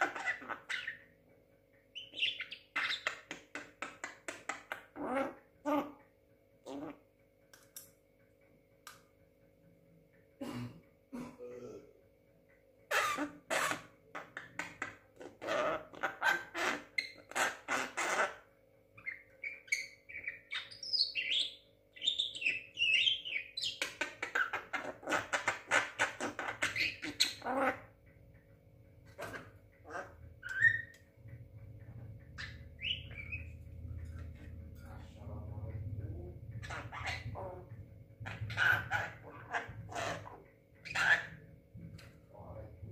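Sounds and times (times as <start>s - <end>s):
bird harsh chattering: 2.0s - 5.8s, 19.0s - 27.9s, 32.4s - 33.6s.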